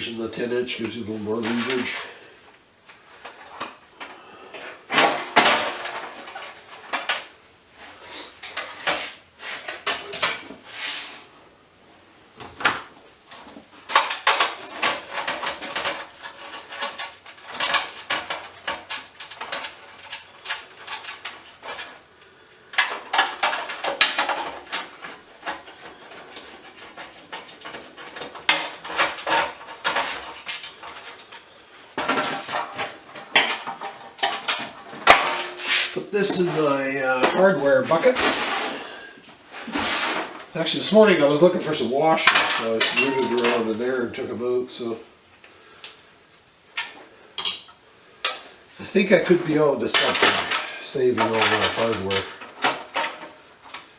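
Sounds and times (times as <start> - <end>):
tools being set down: 4.9 - 7.2, 22.8 - 31.4, 32.0 - 38.9, 42.2 - 43.8, 46.8 - 48.5, 49.9 - 53.8
metal parts clicking and rattling: 13.3 - 22.0, 22.7 - 35.6, 42.2 - 44.0, 49.9 - 53.9.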